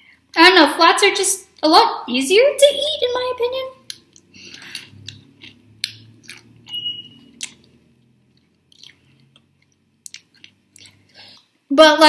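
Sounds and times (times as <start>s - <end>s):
wet mouth clicks and smacks: 3.8s - 11.5s
chewing and biting chicken: 3.9s - 11.1s.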